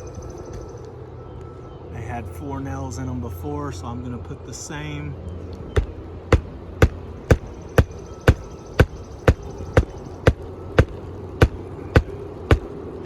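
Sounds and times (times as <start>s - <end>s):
hammer driving nails into shingle: 5.8s - 12.7s.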